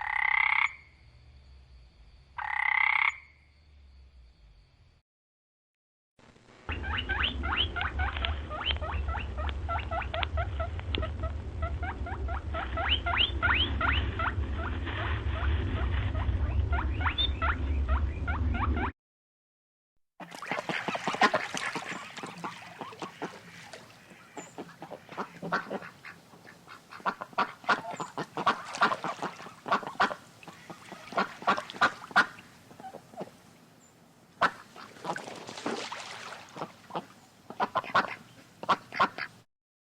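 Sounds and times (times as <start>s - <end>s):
steady low rumble: 6.3s - 18.9s
waterfowl calling rapidly: 6.7s - 15.5s, 20.2s - 33.3s, 34.4s - 39.4s.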